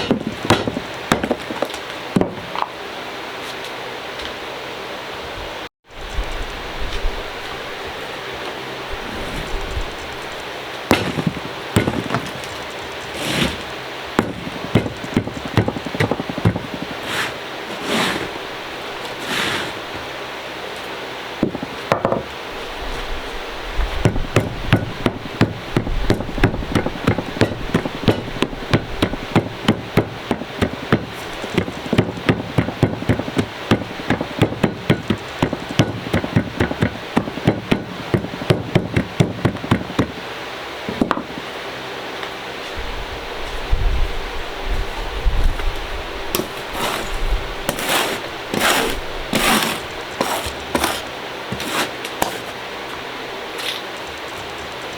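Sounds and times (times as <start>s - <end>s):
dried clay being pounded: 0.0s - 2.6s, 10.8s - 18.2s, 21.4s - 22.3s, 24.0s - 40.2s, 46.3s - 52.6s.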